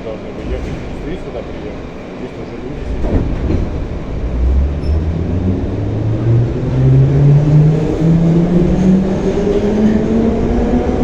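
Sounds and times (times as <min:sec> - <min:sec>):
metro train motor whine: 0:01.8 - 0:11.0.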